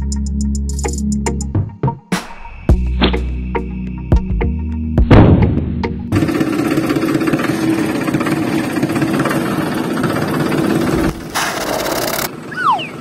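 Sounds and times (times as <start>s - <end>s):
small petrol engine rattling: 6.1s - 12.5s.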